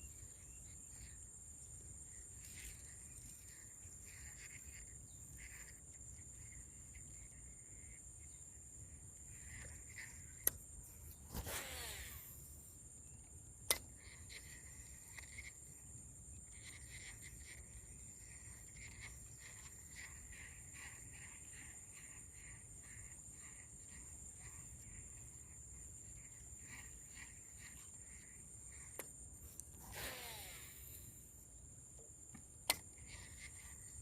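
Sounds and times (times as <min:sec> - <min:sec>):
cricket-like chirps: 0:00.0 - 0:34.0
insect buzzing: 0:00.0 - 0:34.0
sharp click: 0:13.6 - 0:14.0, 0:32.3 - 0:33.0.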